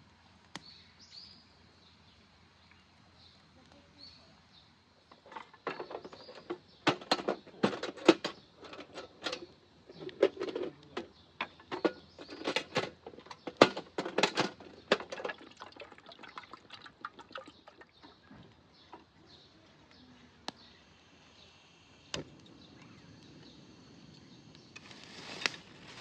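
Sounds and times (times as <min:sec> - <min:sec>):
objects clicking and knocking: 0:05.1 - 0:19.1.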